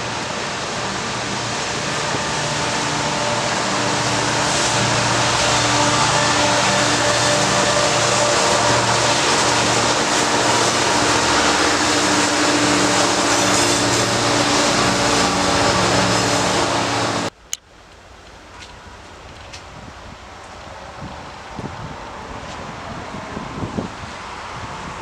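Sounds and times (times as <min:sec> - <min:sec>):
low engine drone: 0:00.0 - 0:17.4
faint wind: 0:00.0 - 0:25.0
train rolling rumble: 0:00.0 - 0:25.0.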